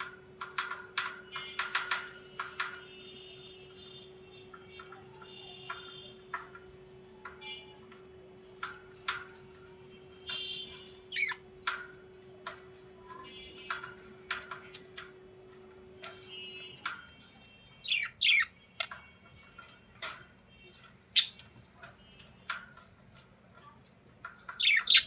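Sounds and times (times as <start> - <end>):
small birds chirping and whistling: 10.3 - 11.8, 17.7 - 19.0, 21.1 - 21.6, 24.4 - 25.0.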